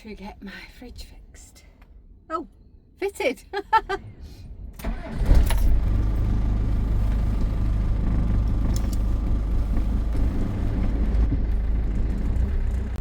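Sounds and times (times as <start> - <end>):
motorhome engine idling: 4.8 - 13.0.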